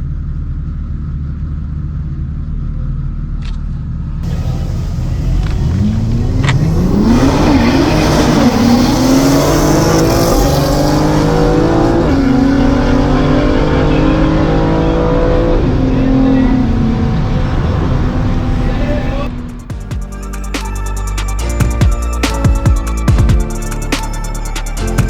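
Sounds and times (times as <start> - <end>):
car engine accelerating hard: 4.2 - 19.7.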